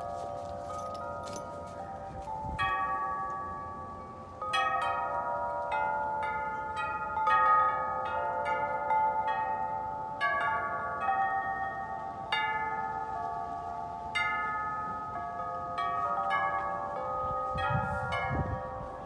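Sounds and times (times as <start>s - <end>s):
faint rush of wind: 0.0s - 4.4s, 9.5s - 19.0s
wind chimes ringing: 0.0s - 19.0s.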